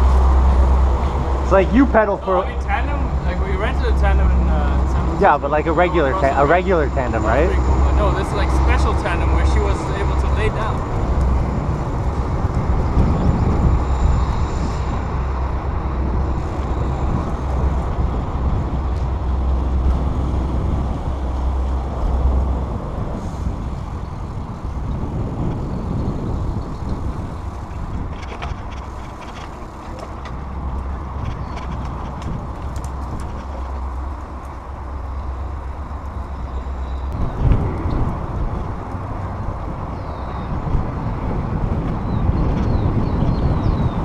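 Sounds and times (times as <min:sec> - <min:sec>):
bicycle riding noise: 0:00.0 - 0:44.0
wind rushing over microphone: 0:00.0 - 0:44.0.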